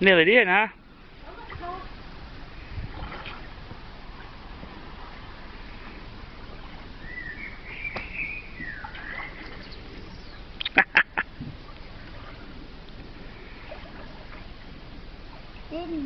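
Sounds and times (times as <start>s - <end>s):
ducks quacking: 10.6s - 11.3s.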